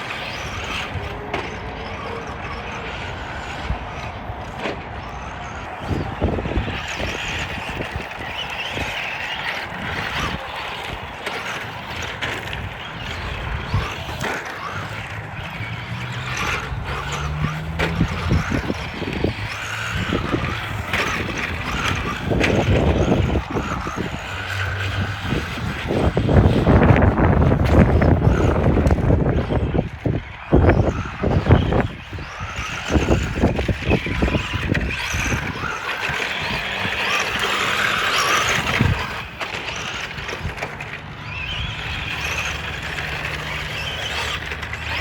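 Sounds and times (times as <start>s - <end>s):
electric toy truck motor whining: 0.0s - 45.0s.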